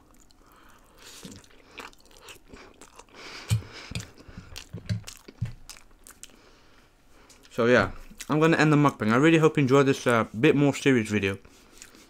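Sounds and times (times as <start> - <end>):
person chewing food: 0.0 - 8.3, 11.5 - 12.0
mouth clicks and smacks: 1.1 - 6.4.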